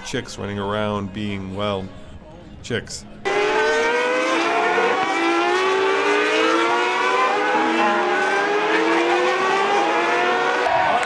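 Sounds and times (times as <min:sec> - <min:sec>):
race car engine accelerating: 0:03.2 - 0:11.0.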